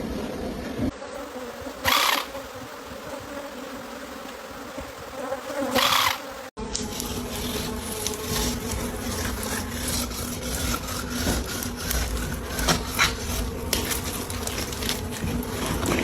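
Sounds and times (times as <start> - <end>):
bees buzzing: 0.9 - 16.0
rubbing and scraping: 6.8 - 16.0.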